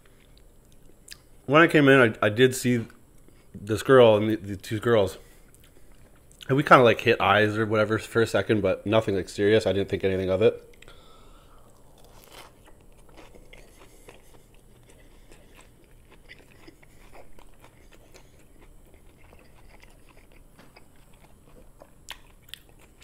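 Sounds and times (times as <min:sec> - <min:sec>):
person chewing a burger: 0:00.0 - 0:01.4, 0:05.2 - 0:06.5, 0:10.7 - 0:23.0.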